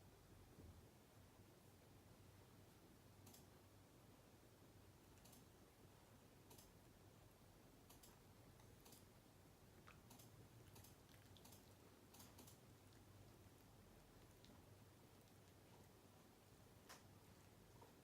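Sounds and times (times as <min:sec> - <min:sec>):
faint sharp clicks: 0:03.2 - 0:03.5, 0:06.4 - 0:06.8, 0:16.8 - 0:17.2.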